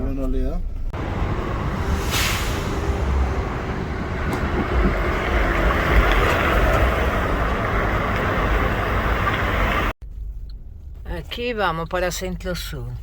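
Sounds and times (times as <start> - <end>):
vehicle engine and tyres rumbling: 0.0 - 13.0
rushing noise: 1.0 - 9.9.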